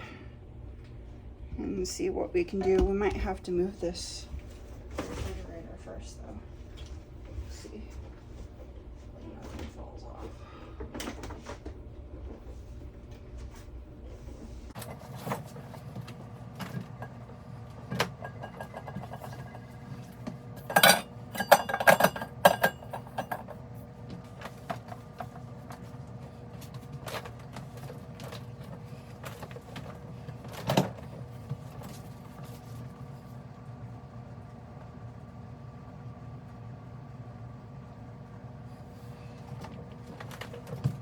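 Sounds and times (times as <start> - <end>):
knocks and clinks: 20.6 - 23.6.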